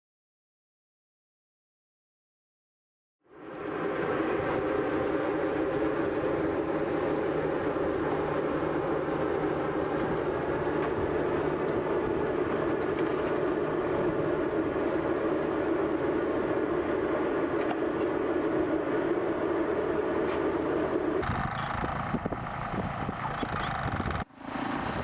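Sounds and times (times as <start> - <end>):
vehicle rumble: 3.3 - 25.0.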